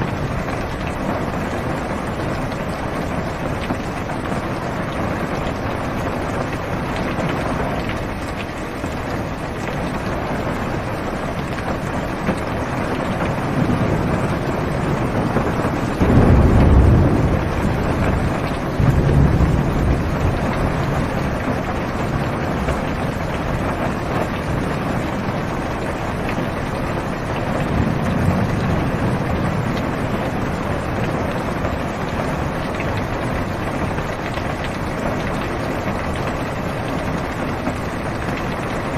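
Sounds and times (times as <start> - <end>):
heavy rain on car roof: 0.0 - 38.9
thunder rumble: 12.2 - 34.8.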